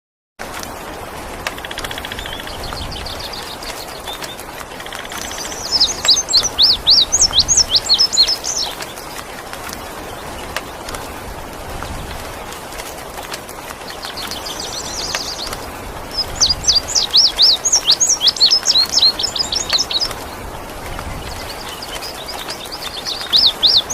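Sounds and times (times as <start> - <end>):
bird singing: 1.6 - 9.2, 13.9 - 20.4, 21.2 - 23.9.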